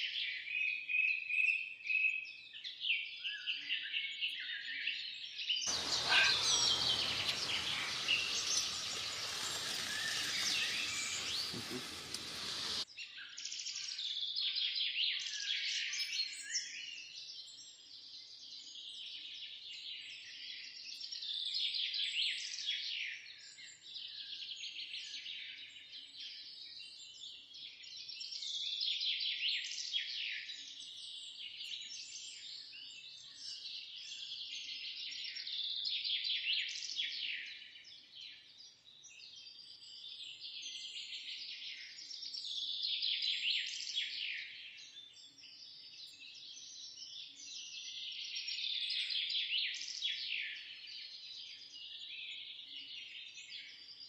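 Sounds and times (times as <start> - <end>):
small birds chirping: 5.7 - 12.9.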